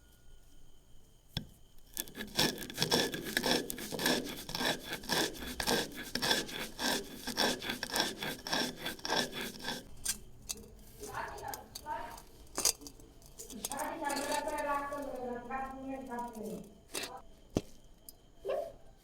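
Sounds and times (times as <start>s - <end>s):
knife sawing through lemon: 2.0s - 10.0s.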